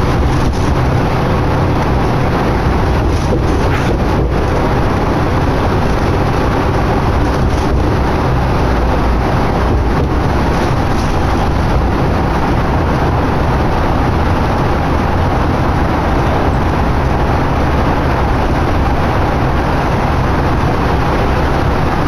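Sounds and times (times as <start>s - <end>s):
bus engine drone: 0.0s - 22.0s
road and wind noise: 0.0s - 22.0s.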